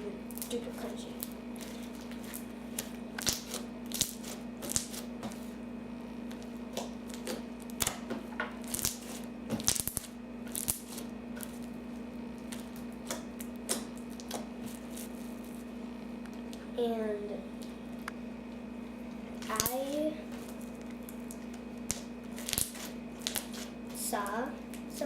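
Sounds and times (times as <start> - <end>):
steady low hum: 0.0 - 25.0
slime crunchy clicks and crackles: 1.2 - 5.1, 8.6 - 11.7, 12.4 - 16.6, 19.4 - 23.8.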